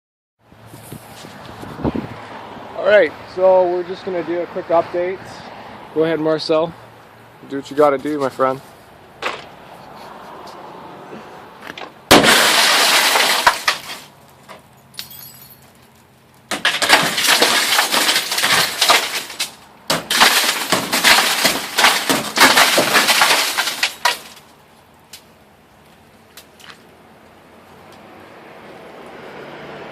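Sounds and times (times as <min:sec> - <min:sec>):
glass smashing and crunching: 0:12.1 - 0:15.9, 0:16.5 - 0:24.6.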